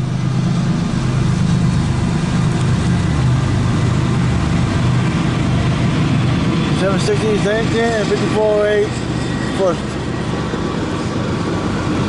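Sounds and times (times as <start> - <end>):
diesel locomotive engine drone: 0.0 - 12.0.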